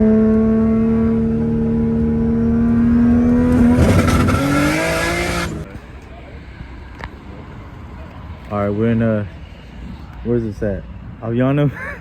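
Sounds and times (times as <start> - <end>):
turbo engine on limiter: 0.0 - 5.7.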